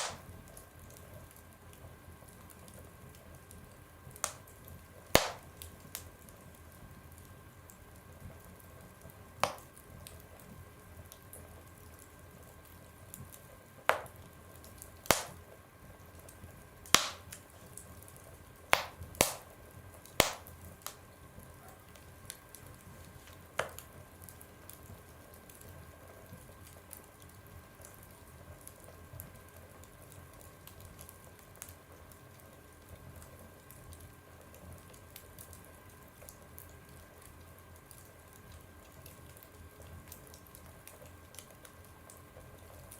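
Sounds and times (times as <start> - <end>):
wood fire popping in stove: 0.0 - 3.2, 4.1 - 6.6, 9.4 - 10.5, 12.7 - 15.5, 16.1 - 25.7
small fire crackles: 0.0 - 42.9.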